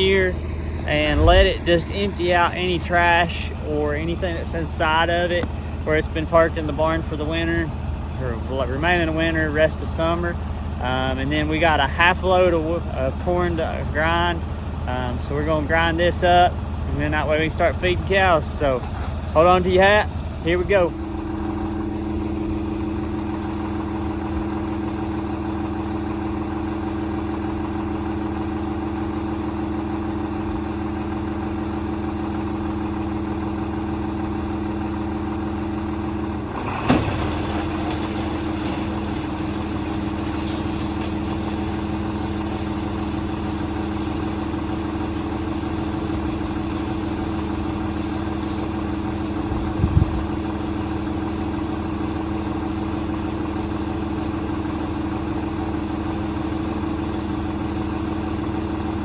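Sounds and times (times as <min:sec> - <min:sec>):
tractor diesel engine running: 0:00.0 - 0:59.0
machine clunk: 0:18.7 - 0:19.6, 0:36.5 - 0:52.2.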